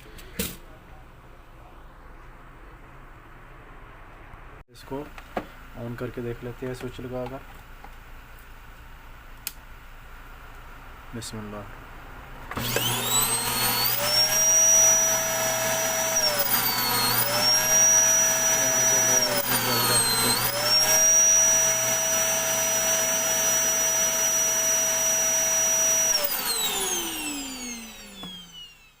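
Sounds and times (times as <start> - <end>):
vacuum cleaner motor whining: 12.5 - 29.0.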